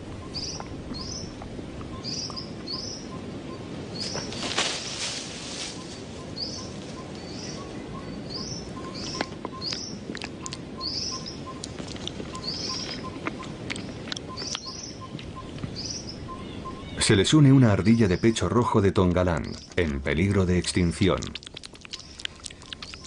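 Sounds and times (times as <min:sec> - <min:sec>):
birds chirping: 0:00.0 - 0:23.0
steady outdoor hiss: 0:00.0 - 0:23.0
sharp clicks: 0:21.2 - 0:23.0.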